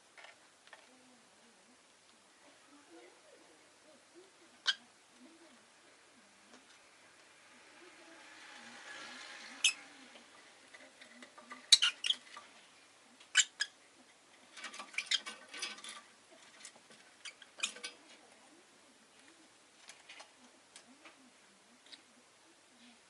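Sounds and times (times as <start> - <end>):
lovebird squeaky chirps: 4.6 - 4.8, 11.7 - 12.2, 13.3 - 13.8.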